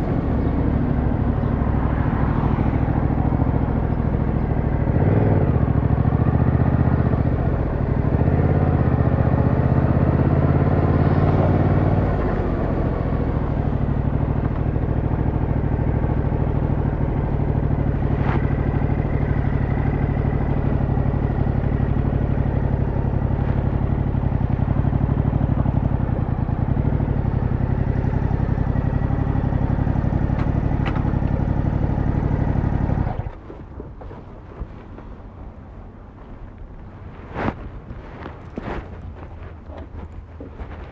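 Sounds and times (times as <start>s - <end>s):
motorcycle engine idling: 0.0s - 9.9s, 12.2s - 34.0s
motorcycle engine revving: 0.0s - 34.4s.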